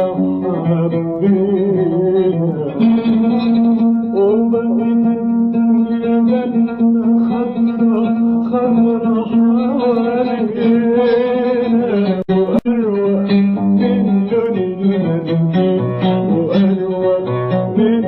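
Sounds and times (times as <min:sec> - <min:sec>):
man singing: 0:00.0 - 0:18.0
plucked oud: 0:00.0 - 0:18.0.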